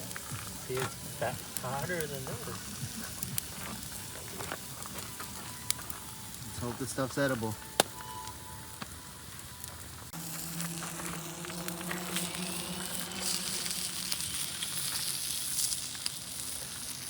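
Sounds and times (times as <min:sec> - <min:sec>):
food sizzling in a pan: 0:00.0 - 0:07.5, 0:10.1 - 0:17.0
fire crackling: 0:00.0 - 0:17.0.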